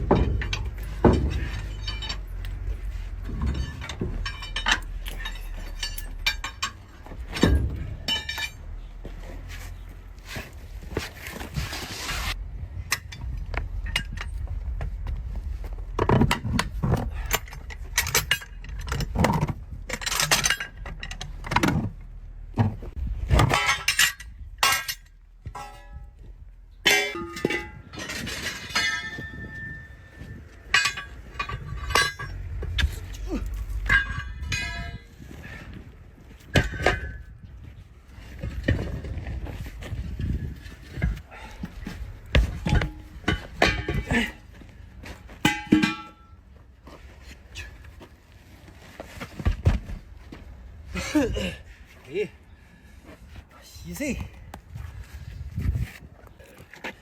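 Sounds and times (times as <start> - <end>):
tools clanking on metal: 0.0 - 11.1, 12.8 - 14.8, 15.9 - 48.0.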